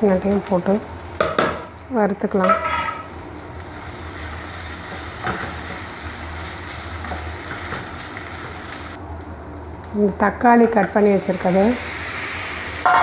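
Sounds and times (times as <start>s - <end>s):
food sizzling in oil: 0.0s - 9.0s, 10.0s - 13.0s
spatula scraping pan: 2.4s - 3.1s.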